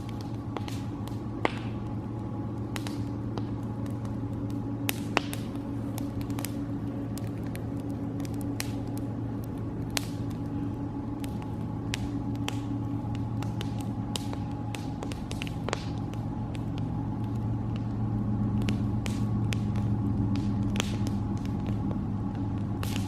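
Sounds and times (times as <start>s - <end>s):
campfire crackling: 0.0s - 23.0s
sharp fire pops: 0.0s - 23.0s
steady low rumble: 0.0s - 23.0s.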